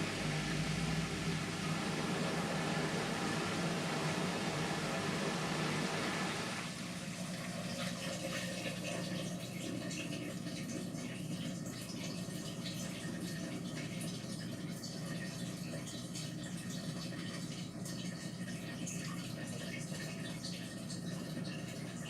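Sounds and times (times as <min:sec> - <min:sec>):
washing machine hiss: 0:00.0 - 0:11.1.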